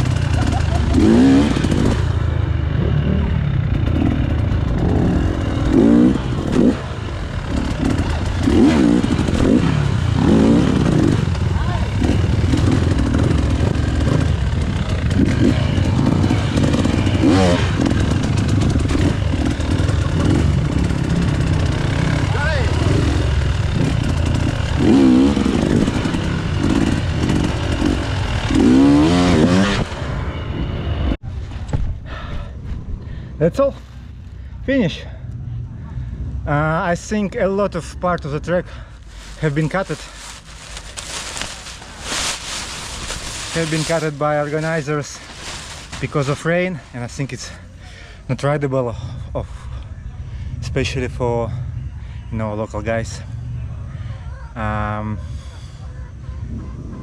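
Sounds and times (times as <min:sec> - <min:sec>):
motorcycle engine idling: 0:00.0 - 0:29.3, 0:38.6 - 0:48.3.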